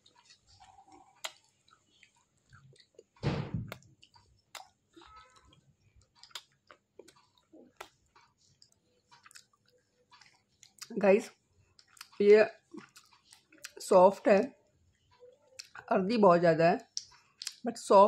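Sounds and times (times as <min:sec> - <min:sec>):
mouth chewing crunchy food: 0:00.0 - 0:11.0, 0:11.7 - 0:13.8, 0:16.9 - 0:17.6.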